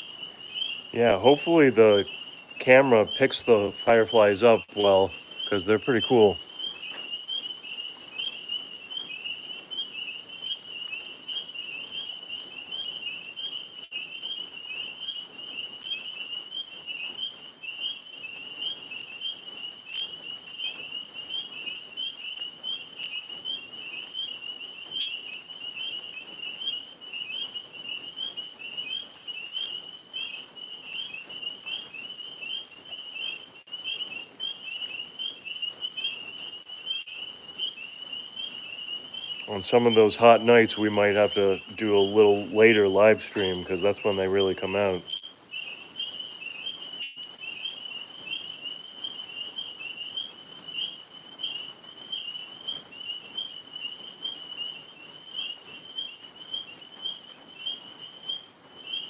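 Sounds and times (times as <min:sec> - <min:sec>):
tree frogs trilling: 0:00.0 - 0:59.0.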